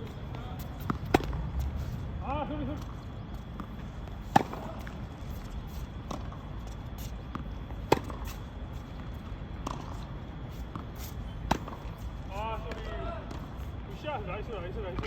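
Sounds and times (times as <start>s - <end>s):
tennis ball bouncing on court: 0.6s - 1.7s, 2.8s - 5.0s, 7.3s - 8.3s, 9.0s - 10.0s, 11.5s - 12.0s
tennis ball struck by racket: 0.8s - 1.5s, 4.2s - 5.0s, 7.3s - 8.3s, 10.7s - 12.0s.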